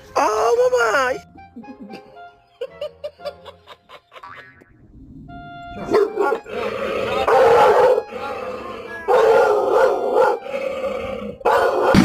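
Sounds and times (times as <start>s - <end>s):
dog howling: 5.2s - 12.0s.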